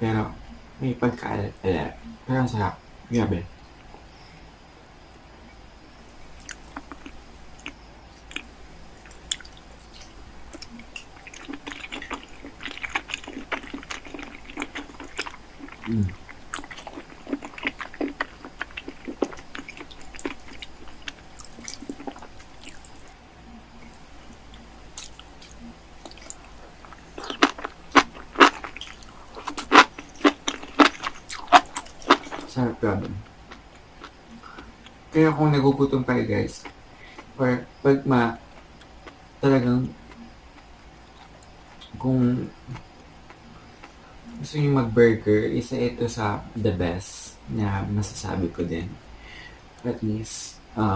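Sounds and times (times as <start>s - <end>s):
crunchy bites: 6.1s - 23.2s, 23.8s - 35.0s
person chewing wetly: 6.3s - 23.2s, 23.8s - 32.6s, 33.2s - 35.0s, 40.1s - 42.0s.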